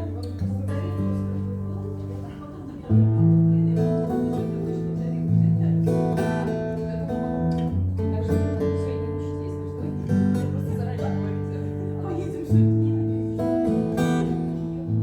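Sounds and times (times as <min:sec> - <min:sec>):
slow acoustic guitar music: 0:00.0 - 0:15.0.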